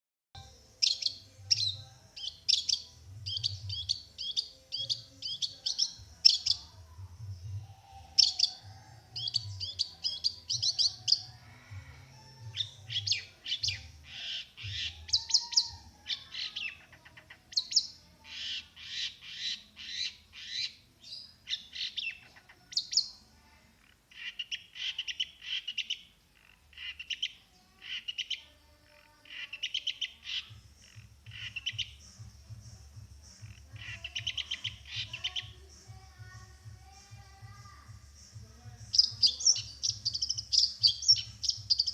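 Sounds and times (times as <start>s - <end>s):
bird chattering song: 0.8s - 6.7s, 8.0s - 11.4s, 12.5s - 23.2s, 23.8s - 32.1s, 33.4s - 35.6s, 38.8s - 41.9s.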